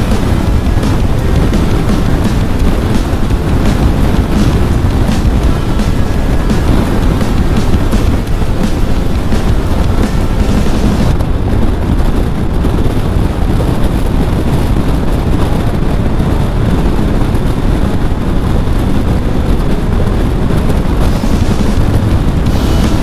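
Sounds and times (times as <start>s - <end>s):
motorcycle engine: 0.0s - 23.0s
wind rushing on microphone: 0.0s - 23.0s
tyre noise: 20.7s - 23.0s.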